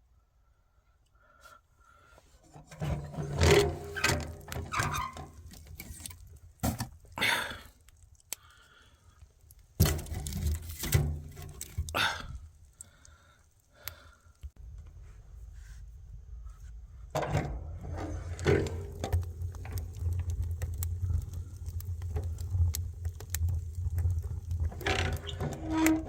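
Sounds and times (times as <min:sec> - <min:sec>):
objects knocking and clattering: 0:02.6 - 0:07.1, 0:09.8 - 0:12.0, 0:17.2 - 0:26.0.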